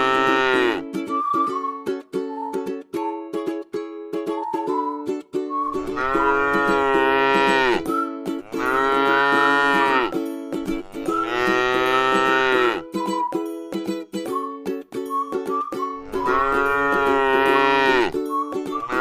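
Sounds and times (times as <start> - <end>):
cow mooing: 0.0 - 0.8, 5.9 - 7.8, 8.4 - 10.1, 10.8 - 12.8, 16.0 - 18.1
background music: 0.0 - 19.0.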